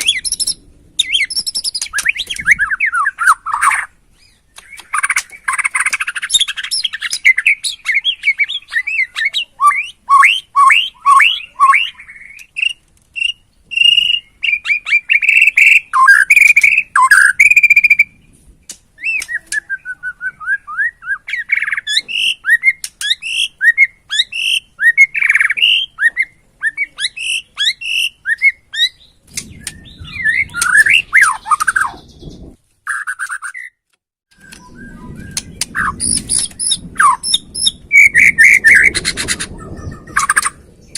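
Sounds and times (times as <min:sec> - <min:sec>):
bird singing varied whistles: 0:00.0 - 0:03.9, 0:04.6 - 0:18.2, 0:19.0 - 0:33.8, 0:34.4 - 0:39.2
low rumble: 0:29.2 - 0:32.6, 0:34.4 - 0:40.9.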